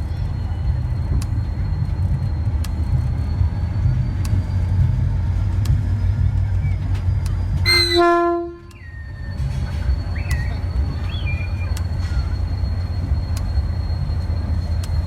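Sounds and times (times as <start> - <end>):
diesel locomotive engine rumble: 0.0 - 15.0
locomotive horn blast: 7.6 - 8.7.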